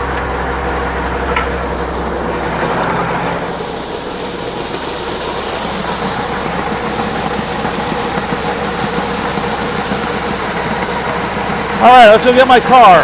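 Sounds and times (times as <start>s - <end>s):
farm engine idling: 0.0s - 13.0s.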